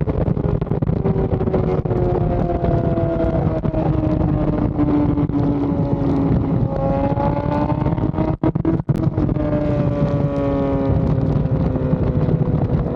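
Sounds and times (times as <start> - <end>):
motorcycle engine revving high: 0.0 - 12.9.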